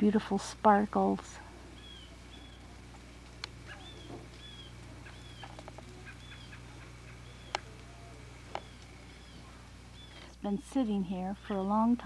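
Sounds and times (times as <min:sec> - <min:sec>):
steady low hum: 0:00.0 - 0:12.0
bird chirping: 0:01.8 - 0:02.7, 0:03.6 - 0:10.3.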